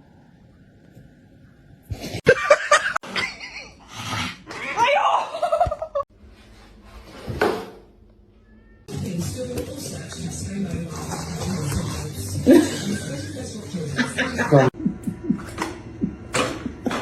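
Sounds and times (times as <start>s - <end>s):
people laughing: 12.4s - 15.7s.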